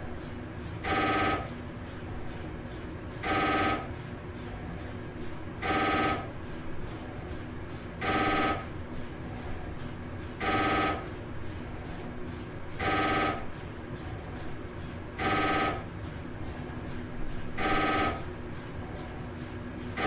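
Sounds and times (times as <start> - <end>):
phone ringtone: 5.6 - 6.3, 8.0 - 8.6, 10.4 - 11.1, 12.8 - 13.4, 15.2 - 15.8, 17.6 - 18.2.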